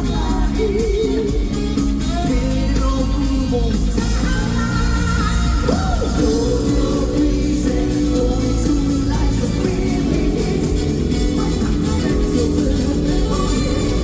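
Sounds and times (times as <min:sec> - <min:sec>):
live funk rock band: 0:00.0 - 0:14.0.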